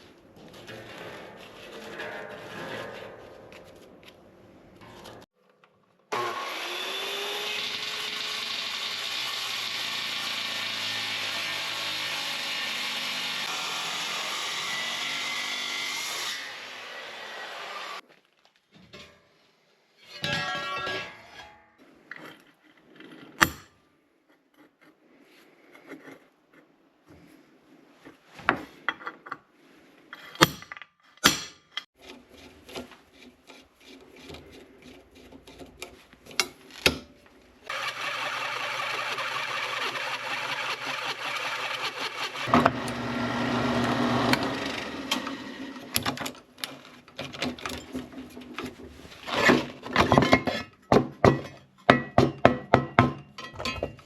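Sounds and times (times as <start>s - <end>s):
power tool running: 6.1s - 15.7s, 37.7s - 46.0s.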